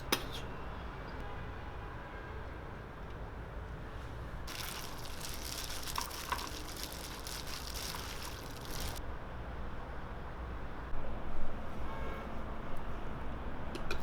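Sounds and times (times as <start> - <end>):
liquid pouring: 4.5 - 9.0.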